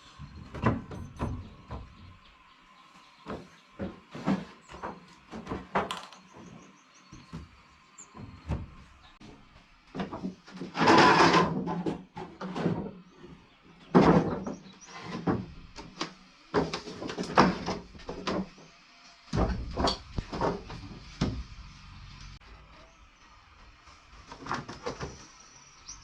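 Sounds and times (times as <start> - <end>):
scraping drags: 10.6 - 11.7.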